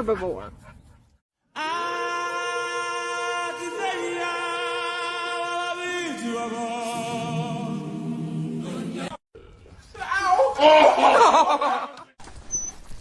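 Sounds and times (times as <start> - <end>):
voices singing a cappella: 1.5 - 9.2.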